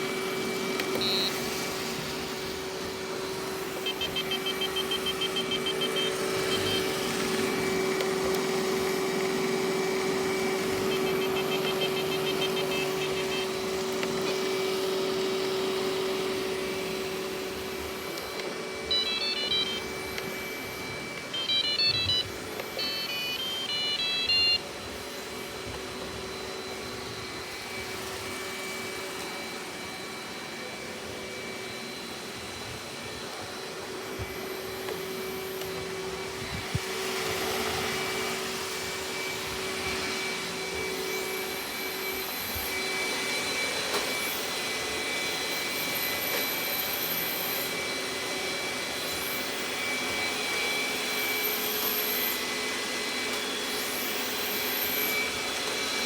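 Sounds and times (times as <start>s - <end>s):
robot vacuum cleaner running: 0.0s - 56.0s
stepped electronic beeps: 3.8s - 6.9s, 10.9s - 13.5s, 20.5s - 24.6s.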